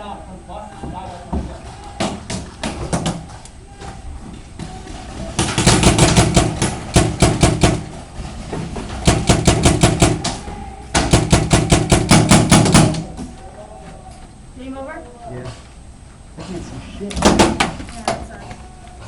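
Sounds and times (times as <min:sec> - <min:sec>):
paintball marker firing rapid shots: 0:05.4 - 0:08.0, 0:09.0 - 0:10.4, 0:11.0 - 0:13.1.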